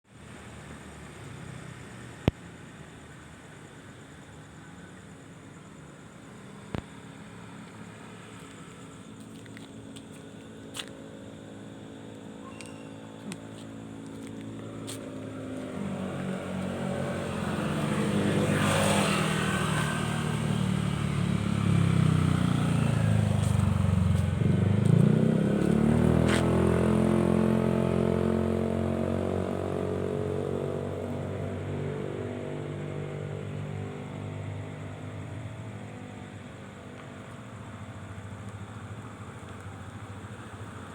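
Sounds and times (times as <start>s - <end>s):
truck engine passing: 14.6s - 31.0s.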